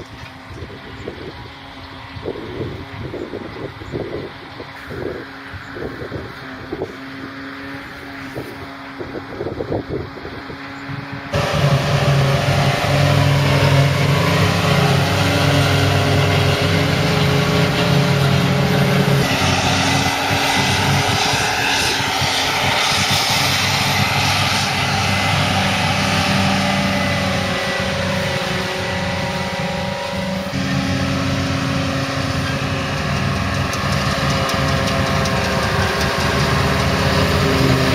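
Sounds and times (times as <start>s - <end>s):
diesel machinery engine drone: 0.0s - 37.9s
rushing noise: 11.3s - 37.9s.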